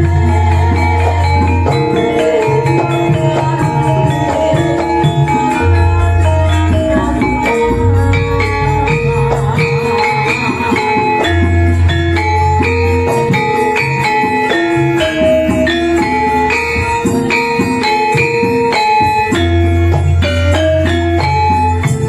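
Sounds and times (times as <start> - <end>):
jingling percussion: 0.0 - 22.0
ringing metallophone melody: 0.0 - 22.0.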